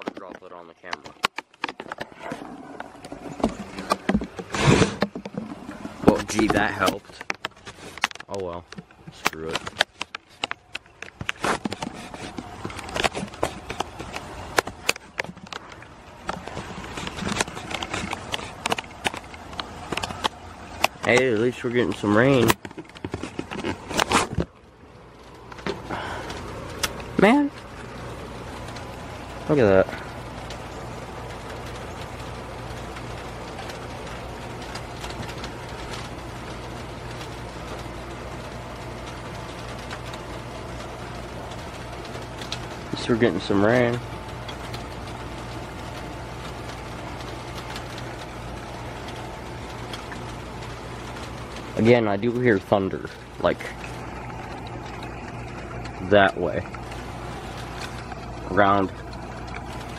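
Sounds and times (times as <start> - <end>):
constant low hum: 0.0 - 59.9
raindrops tapping near microphone: 0.0 - 59.9
light rain: 12.2 - 59.9.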